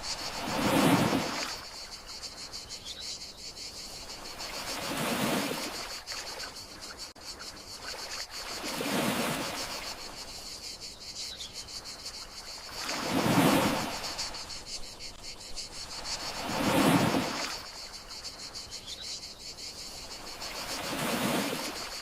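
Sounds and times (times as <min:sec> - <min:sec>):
gentle sea waves washing in: 0:00.0 - 0:02.4, 0:03.8 - 0:06.6, 0:07.8 - 0:10.4, 0:12.4 - 0:18.6, 0:19.9 - 0:22.0
crickets chirring: 0:00.0 - 0:22.0.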